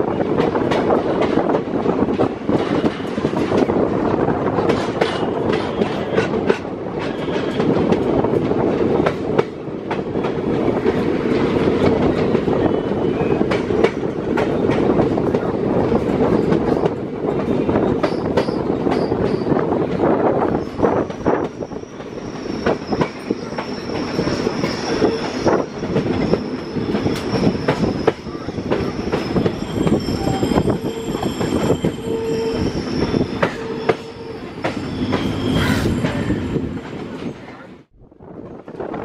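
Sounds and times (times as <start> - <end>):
train coach rumbling: 0.0 - 39.0
high wheel squeal: 20.6 - 36.7.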